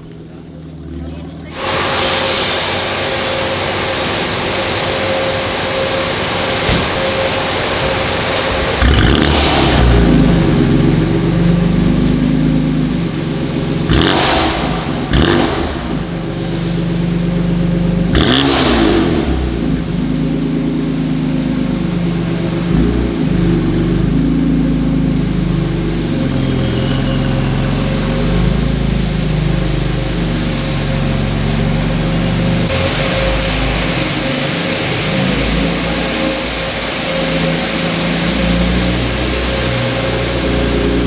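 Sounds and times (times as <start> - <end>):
car engine revving: 0.0 - 41.0
short sharp exhaust bursts: 1.4 - 17.5.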